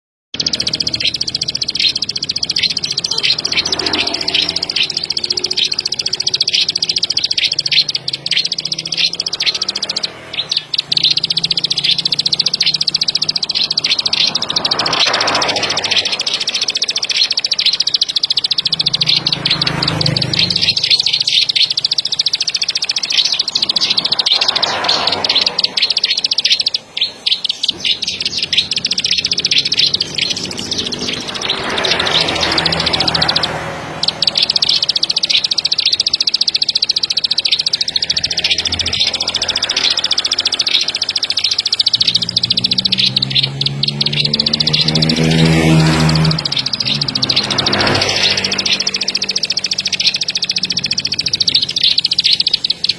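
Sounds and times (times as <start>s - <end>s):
bird singing rapid high notes: 0.4s - 52.9s.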